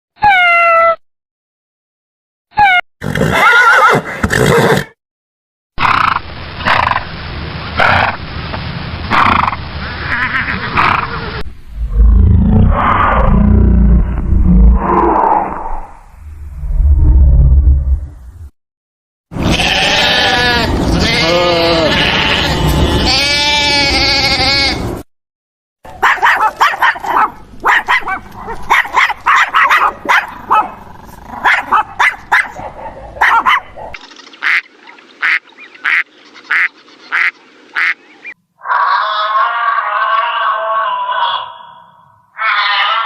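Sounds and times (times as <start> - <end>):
wavering bleating: 19.4 - 24.9, 38.8 - 41.8, 42.4 - 43.0.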